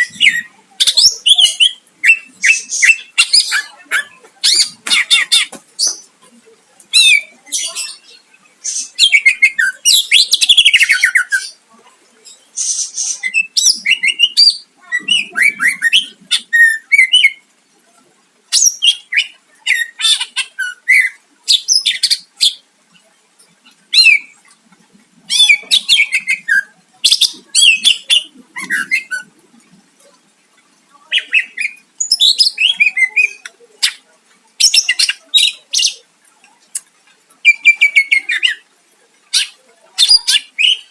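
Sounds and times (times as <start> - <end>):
bird singing whistles and trills: 40.0 - 40.9.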